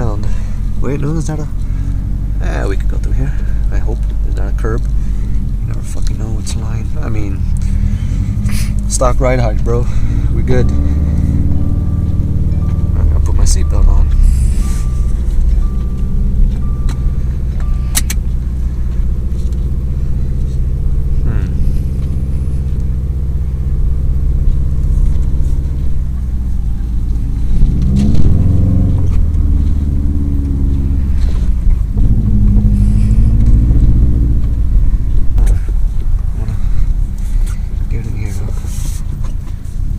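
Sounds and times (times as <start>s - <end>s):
car engine running: 0.0s - 39.9s
seatbelt warning chime: 9.0s - 19.3s
seatbelt buckle click: 17.9s - 18.2s.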